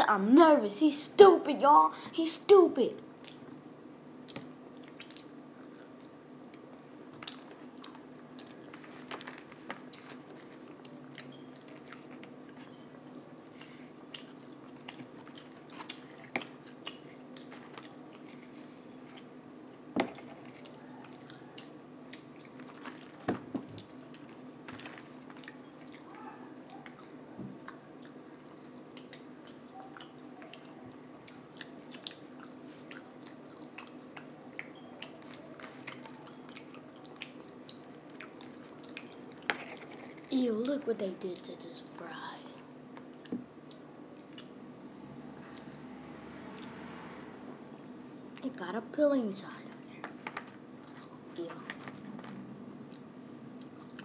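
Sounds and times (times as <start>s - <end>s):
people chewing: 3.2s - 3.6s, 4.2s - 40.4s, 42.5s - 44.6s, 49.8s - 54.0s.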